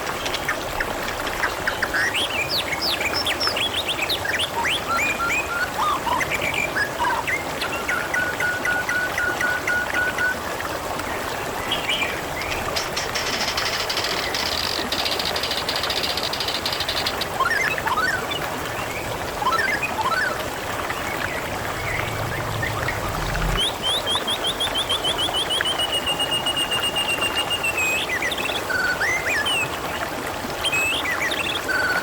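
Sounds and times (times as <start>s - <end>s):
water trickling and babbling: 0.0s - 32.0s
small birds chirping: 11.8s - 20.3s.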